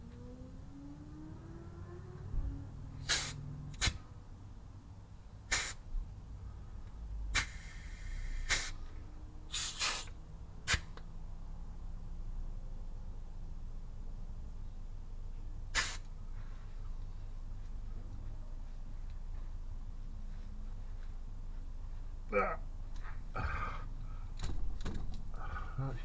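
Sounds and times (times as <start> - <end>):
grease gun air hisses: 3.0 - 4.0, 5.5 - 5.8, 7.3 - 8.8, 9.5 - 10.8, 15.8 - 16.1.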